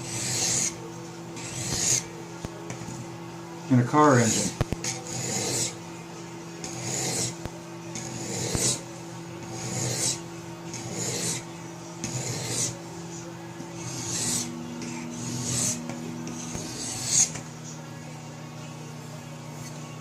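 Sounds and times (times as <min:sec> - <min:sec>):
sharpening stone rasping on knife: 0:00.0 - 0:00.8, 0:01.4 - 0:02.1, 0:04.2 - 0:05.8, 0:06.6 - 0:07.4, 0:08.0 - 0:08.8, 0:09.4 - 0:12.8, 0:13.8 - 0:17.4.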